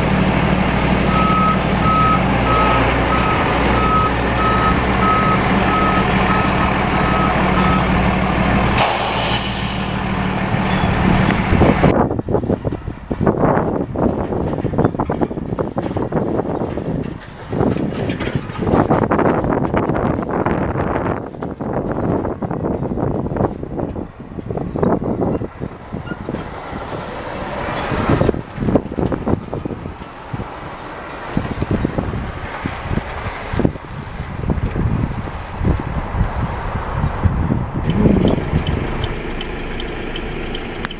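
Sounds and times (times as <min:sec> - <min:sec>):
truck engine running: 0:00.0 - 0:12.7, 0:24.4 - 0:40.9
reversing alarm beeping: 0:01.1 - 0:07.9
air brake hiss: 0:08.8 - 0:10.0
wind on microphone: 0:09.8 - 0:39.9.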